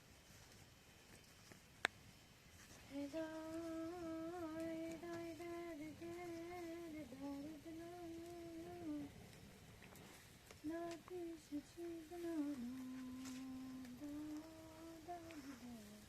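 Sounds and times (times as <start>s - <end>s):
person humming a slow tune: 2.8s - 9.4s, 10.6s - 16.0s.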